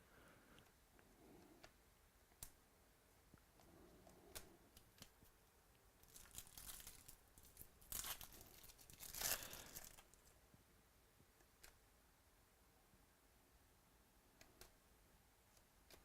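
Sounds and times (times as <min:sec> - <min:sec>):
card pack wrapper tearing: 0:06.0 - 0:10.1.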